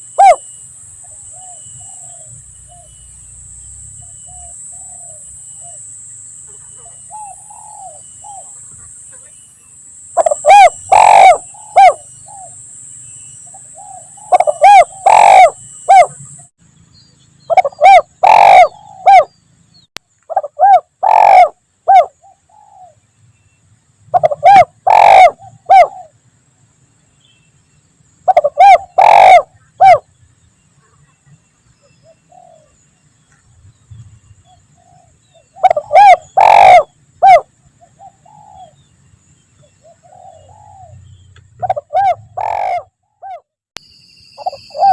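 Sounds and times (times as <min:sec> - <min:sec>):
dove cooing: 0:00.0 - 0:03.0, 0:04.0 - 0:05.9, 0:06.6 - 0:09.3, 0:10.2 - 0:12.6, 0:13.5 - 0:16.3, 0:17.5 - 0:19.3, 0:20.3 - 0:23.0, 0:24.1 - 0:26.2, 0:28.3 - 0:30.1, 0:31.8 - 0:32.8, 0:34.5 - 0:38.8, 0:39.6 - 0:41.0, 0:41.6 - 0:43.4, 0:44.4 - 0:44.9.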